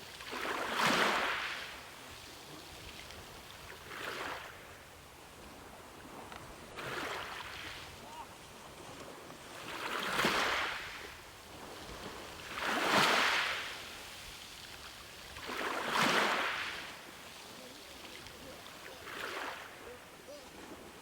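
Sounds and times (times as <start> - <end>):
ocean waves washing in: 9.5 - 21.0.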